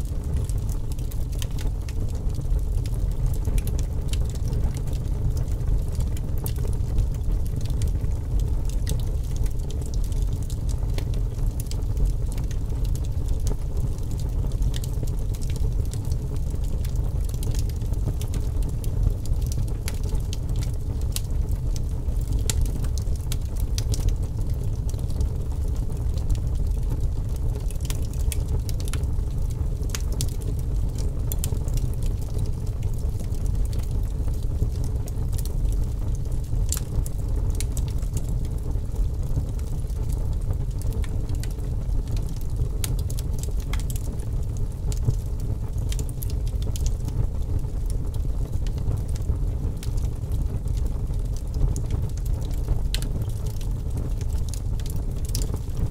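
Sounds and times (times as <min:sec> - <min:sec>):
fire crackles and pops: 0:00.0 - 0:55.9
wood fire rumbling: 0:00.0 - 0:55.9.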